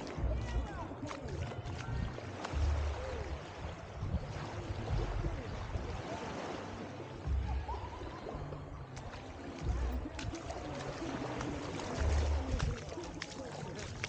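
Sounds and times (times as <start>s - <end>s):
wind buffeting microphone: 0.0s - 9.0s
faint distant voices: 0.0s - 14.0s
water washing at shore: 0.0s - 14.0s.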